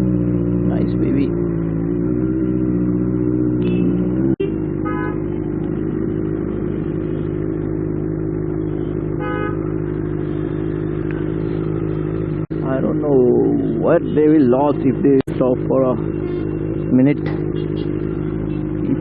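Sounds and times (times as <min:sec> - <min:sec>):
motorcycle engine running: 0:00.0 - 0:19.0
car horns honking: 0:03.5 - 0:05.4, 0:08.6 - 0:11.9, 0:12.7 - 0:19.0.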